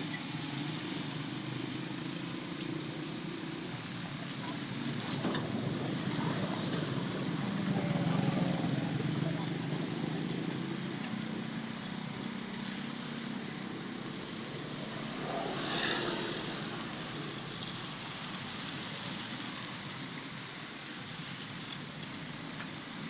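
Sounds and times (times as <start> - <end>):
road traffic noise: 0.0 - 23.0
vehicle passing: 14.7 - 17.2.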